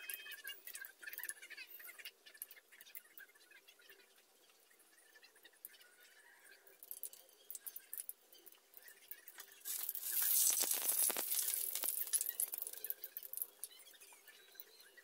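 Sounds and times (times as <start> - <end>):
fritter frying in oil: 8.8 - 13.9.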